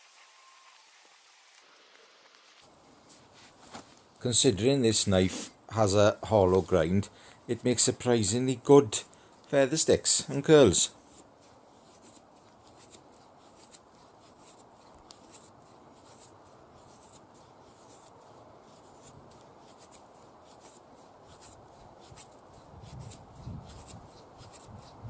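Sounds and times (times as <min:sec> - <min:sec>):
knife scraping wood: 0:11.0 - 0:25.0.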